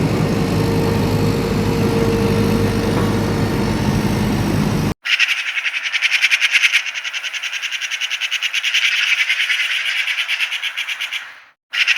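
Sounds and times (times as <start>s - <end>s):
rapid chirring animal trill: 0.0s - 11.9s.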